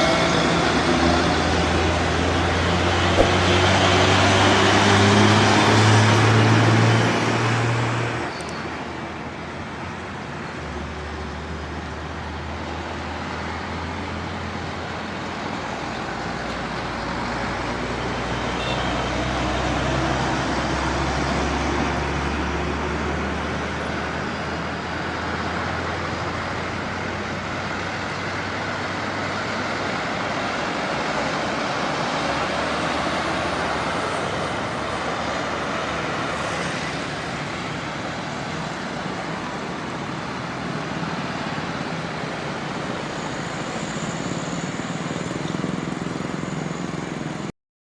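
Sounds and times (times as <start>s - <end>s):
tyre and road noise: 0.0s - 9.5s, 11.7s - 47.5s.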